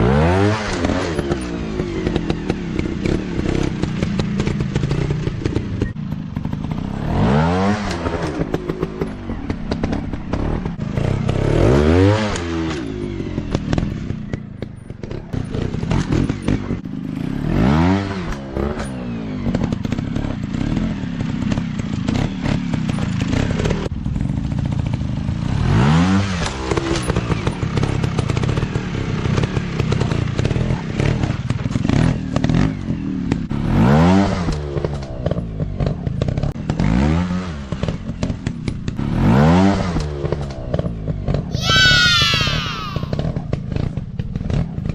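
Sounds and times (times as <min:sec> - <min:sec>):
dirt bike engines revving: 0:41.5 - 0:43.8.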